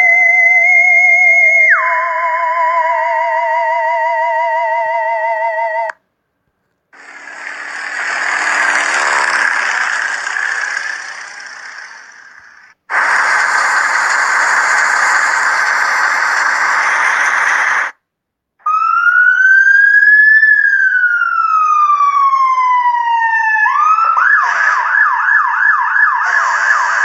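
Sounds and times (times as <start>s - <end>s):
vehicle passing by: 7.0s - 12.6s
electronic siren warbling: 7.0s - 17.9s, 18.7s - 27.0s
steady hissing noise: 7.0s - 18.0s.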